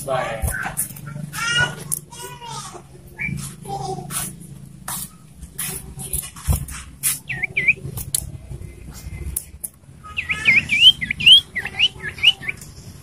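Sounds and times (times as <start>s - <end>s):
bird whistling calls: 7.2s - 7.9s, 10.1s - 12.6s.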